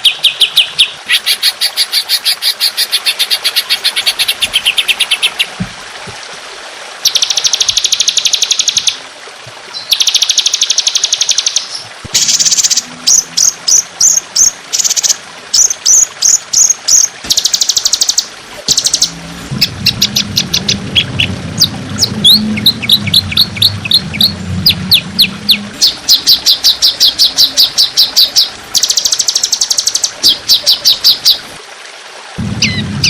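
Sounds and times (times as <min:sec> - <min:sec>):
songbird rapid trills: 0:09.7 - 0:31.5
low hum: 0:12.0 - 0:14.4, 0:18.2 - 0:29.0, 0:32.4 - 0:33.0.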